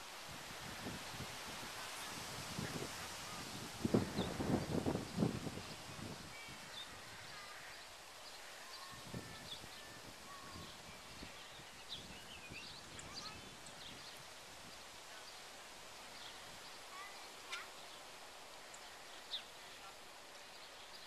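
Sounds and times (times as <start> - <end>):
wind rumble on microphone: 0.0 - 7.8, 8.8 - 16.8
small birds chirping: 2.0 - 21.0.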